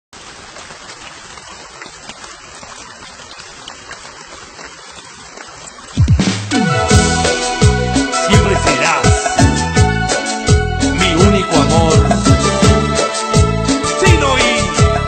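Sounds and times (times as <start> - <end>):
steady rain: 0.1 - 15.0
small drip clicks: 0.6 - 6.1
loud music with bass swoops: 6.0 - 15.0.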